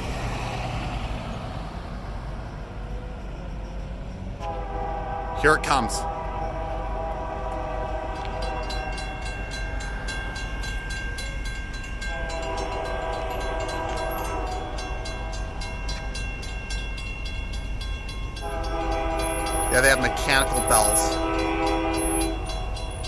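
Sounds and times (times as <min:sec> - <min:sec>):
crossing bells ringing: 0:02.0 - 0:23.0
locomotive air horn: 0:04.4 - 0:09.5, 0:12.0 - 0:15.8, 0:18.4 - 0:23.0.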